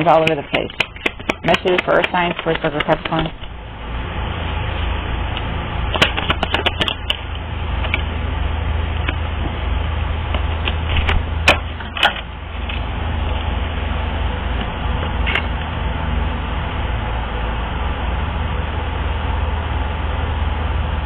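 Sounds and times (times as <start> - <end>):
cards shuffling with snapping clicks: 0.0 - 3.5, 5.9 - 7.2
steady low hum: 0.0 - 21.0.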